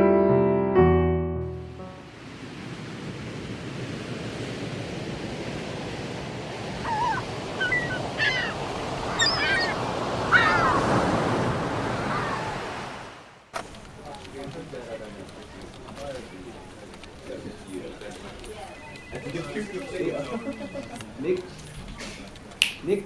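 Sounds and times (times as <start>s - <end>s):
waves washing onto rocks: 2.2s - 16.0s
bird calls: 6.8s - 11.0s.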